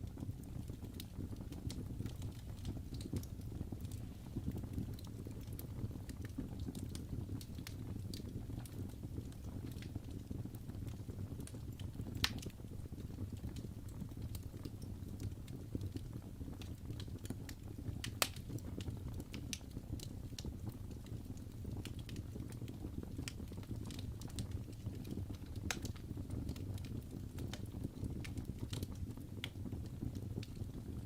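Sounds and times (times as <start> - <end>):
low rumble of flames: 0.0 - 31.0
wood fire crackling: 0.0 - 31.0
fire pops: 0.1 - 31.0.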